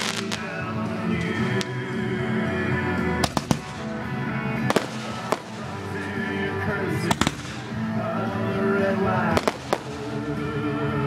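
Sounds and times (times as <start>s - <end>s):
fireworks bangs: 0.0s - 0.6s, 3.2s - 4.0s, 4.6s - 5.9s, 7.0s - 7.8s, 9.3s - 10.2s
music: 0.0s - 11.0s.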